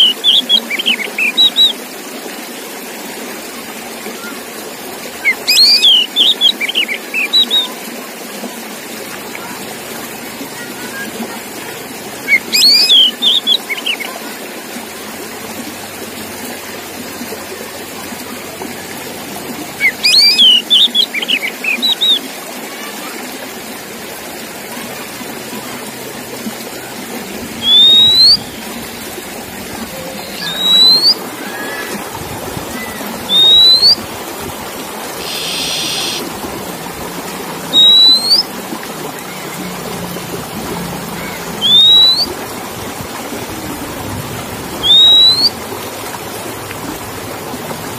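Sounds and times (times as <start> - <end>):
bird whistling song: 0.0 - 1.8, 5.2 - 7.7, 12.2 - 14.1, 19.8 - 22.2, 27.6 - 28.6, 29.9 - 32.0, 32.8 - 34.0, 35.2 - 36.2, 37.7 - 38.5, 41.6 - 42.3, 44.8 - 45.6.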